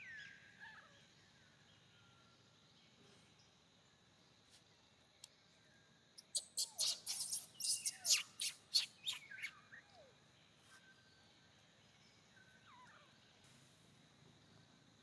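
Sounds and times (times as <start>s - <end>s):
bird chirping: 6.2s - 10.9s.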